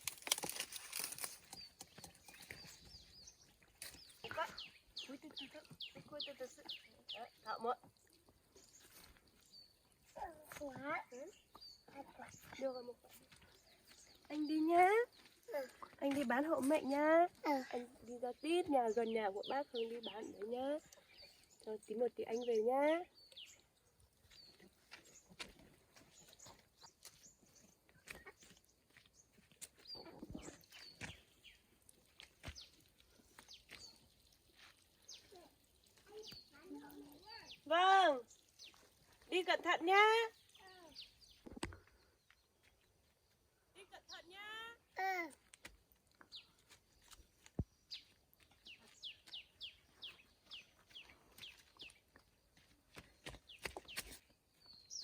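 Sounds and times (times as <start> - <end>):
faint bird chirping: 40.3 - 44.3, 46.2 - 55.0.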